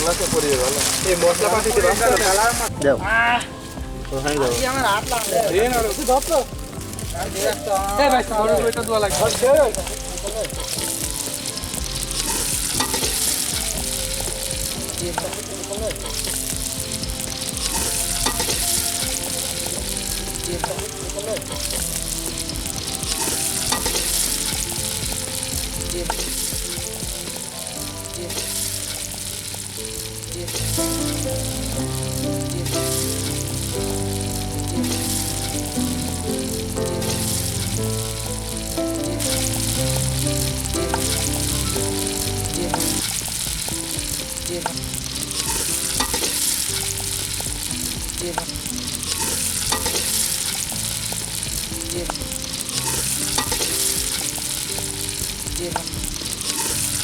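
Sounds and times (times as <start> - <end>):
food sizzling in hot oil: 0.0 - 57.0.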